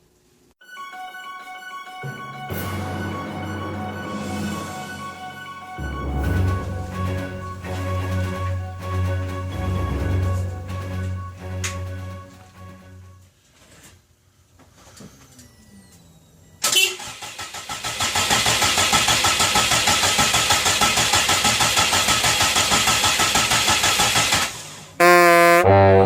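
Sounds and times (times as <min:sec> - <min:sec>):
engine cranking by starter motor: 0:16.6 - 0:24.8.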